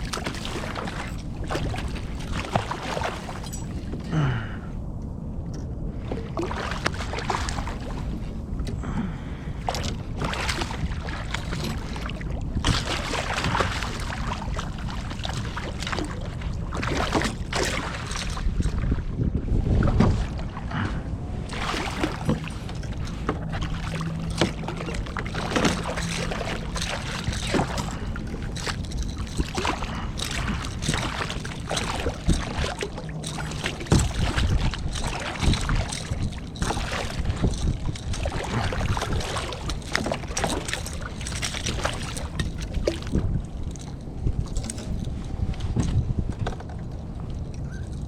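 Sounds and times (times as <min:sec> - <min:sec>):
water splashing: 0:00.0 - 0:04.6, 0:06.0 - 0:18.9, 0:20.0 - 0:45.2
small knocks and rattles: 0:21.9 - 0:48.0.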